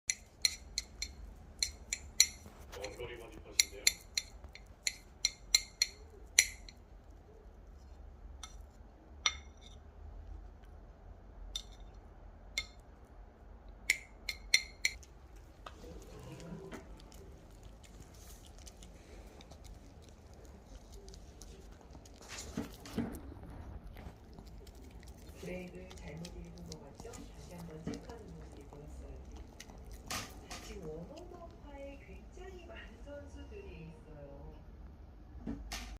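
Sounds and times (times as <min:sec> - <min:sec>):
cutlery clinking against dish: 0:11.6 - 0:11.9.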